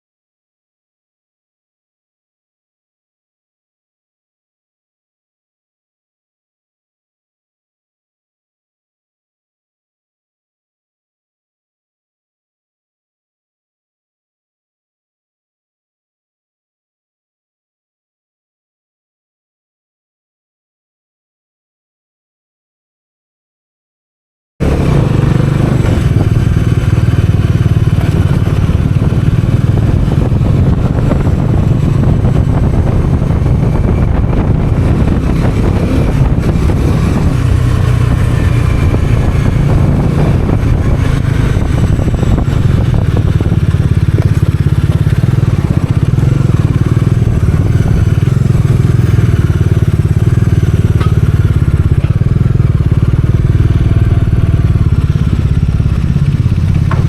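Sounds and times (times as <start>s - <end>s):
motorcycle engine running: 24.6s - 57.0s.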